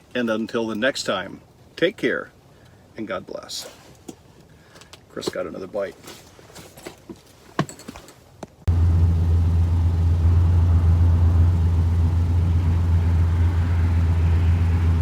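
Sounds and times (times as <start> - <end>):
loud low engine-like drone: 8.7 - 15.0.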